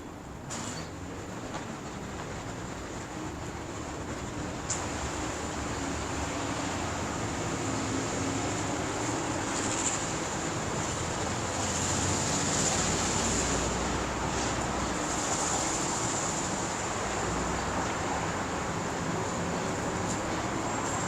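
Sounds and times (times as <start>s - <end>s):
road traffic: 0.0s - 21.0s
wind: 0.0s - 21.0s
constant high hiss: 2.1s - 21.0s.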